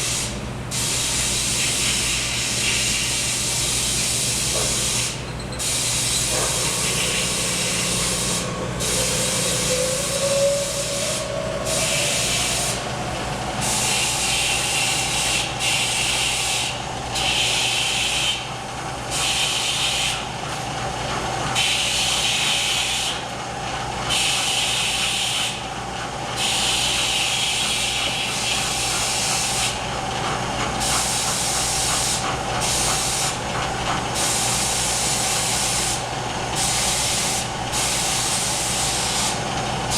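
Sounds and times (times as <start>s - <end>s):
hiss: 0.0s - 18.4s, 30.8s - 33.4s, 36.6s - 39.4s
milling machine humming: 5.2s - 16.3s.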